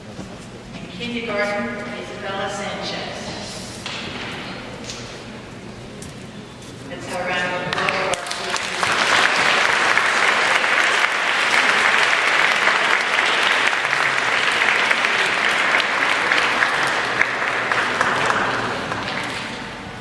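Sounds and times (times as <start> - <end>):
audience applause: 7.7 - 20.0.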